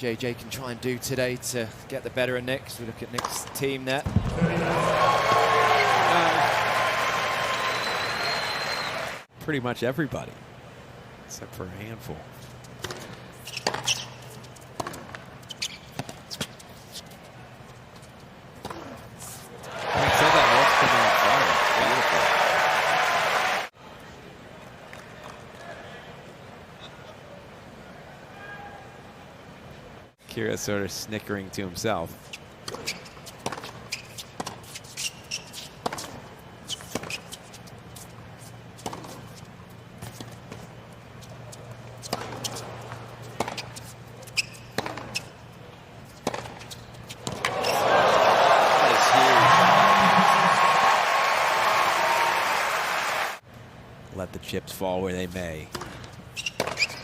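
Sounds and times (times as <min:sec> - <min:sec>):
low stadium hum: 0:00.0 - 0:57.0
shoes squeaking: 0:12.4 - 0:20.6, 0:32.2 - 0:47.9, 0:55.8 - 0:57.0
tennis ball struck and bouncing: 0:12.8 - 0:14.1, 0:44.5 - 0:45.2, 0:46.2 - 0:46.6
tennis ball strikes and bounces: 0:12.8 - 0:14.2, 0:14.8 - 0:15.3, 0:32.6 - 0:34.7, 0:35.5 - 0:37.2, 0:38.8 - 0:39.4, 0:42.0 - 0:45.3, 0:46.2 - 0:47.6, 0:55.7 - 0:57.0.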